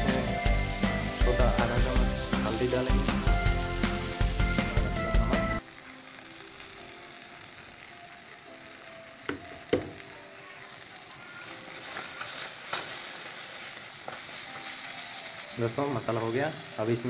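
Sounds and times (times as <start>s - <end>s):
food sizzling in oil: 0.0s - 17.0s
wooden spatula knocking pan: 9.3s - 10.0s.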